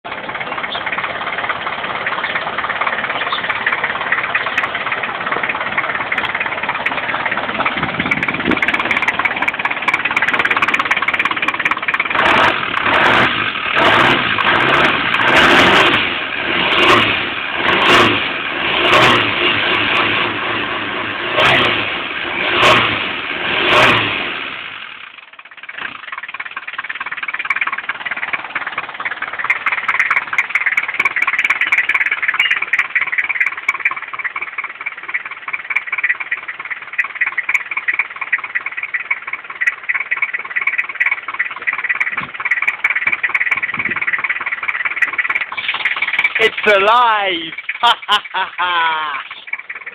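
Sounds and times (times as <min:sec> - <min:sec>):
engine revving: 0:01.8 - 0:25.1, 0:40.9 - 0:46.8.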